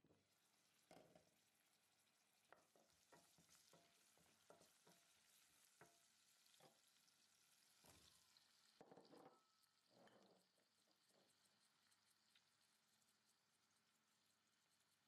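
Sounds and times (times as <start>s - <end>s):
vegetables sizzling in oil: 0.1s - 15.0s.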